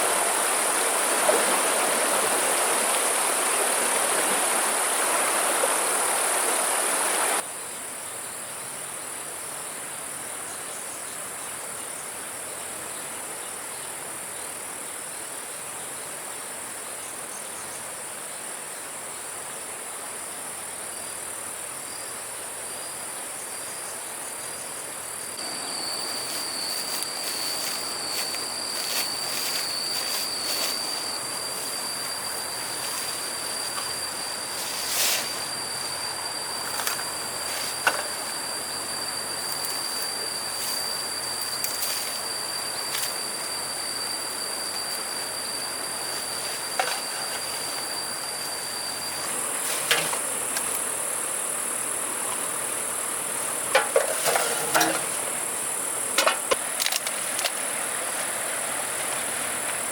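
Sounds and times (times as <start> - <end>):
rushing water: 0.0 - 7.4
thin steady whine: 0.0 - 59.9
high-pitched insect buzzing: 25.2 - 57.0.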